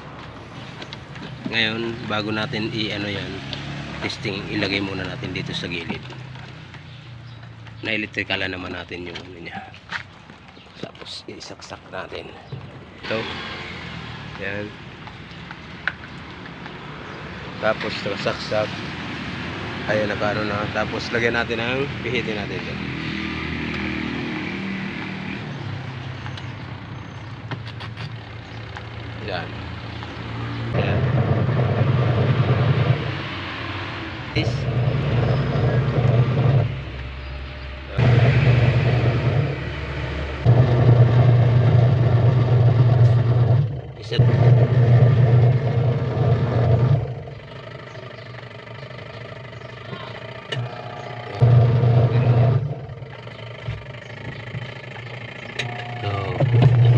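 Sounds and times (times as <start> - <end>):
washing machine motor humming: 30.7 - 33.4, 34.2 - 37.0, 37.9 - 56.9.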